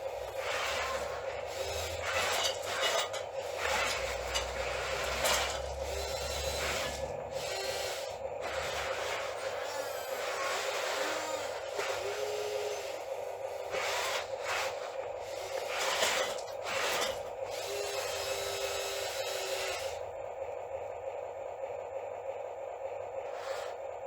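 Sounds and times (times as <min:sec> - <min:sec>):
rubbing and scraping: 0:00.0 - 0:18.4, 0:23.3 - 0:23.8
small electric motors whining: 0:00.0 - 0:20.1, 0:23.2 - 0:24.0.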